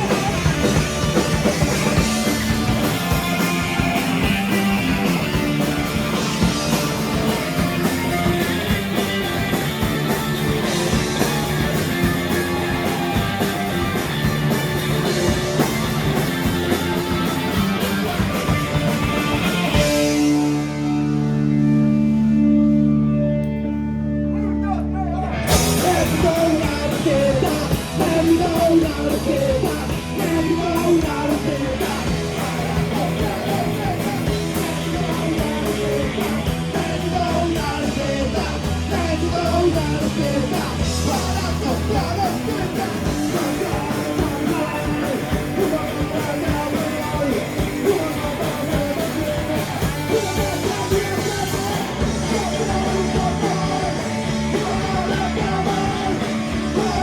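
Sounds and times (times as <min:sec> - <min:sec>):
punk rock band playing: 0:00.0 - 0:57.0
person singing: 0:25.1 - 0:57.0.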